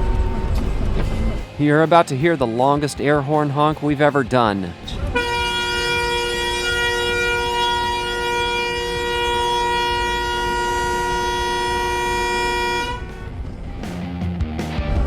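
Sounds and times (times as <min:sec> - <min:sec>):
traffic noise: 0:00.0 - 0:14.0
vehicle air horn blast: 0:05.0 - 0:13.3.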